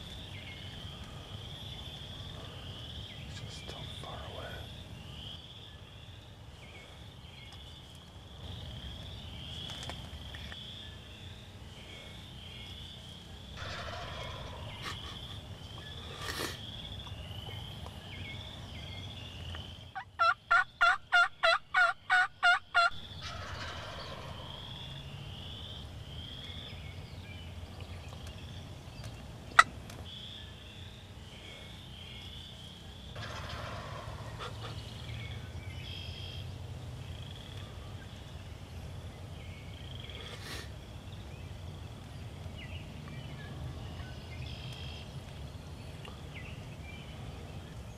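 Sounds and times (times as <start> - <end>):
turkey yelps: 13.6 - 15.2, 20.0 - 25.0.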